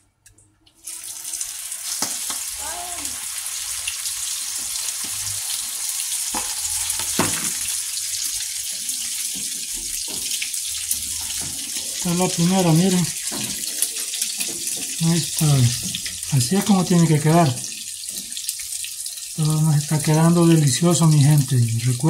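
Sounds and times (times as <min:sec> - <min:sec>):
patty sizzling in hot oil: 0:00.8 - 0:21.9.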